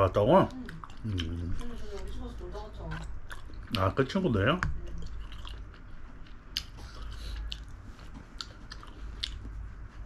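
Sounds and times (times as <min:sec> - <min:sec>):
person chewing food: 0:00.3 - 0:10.0
mouth clicks and smacks: 0:05.2 - 0:09.5.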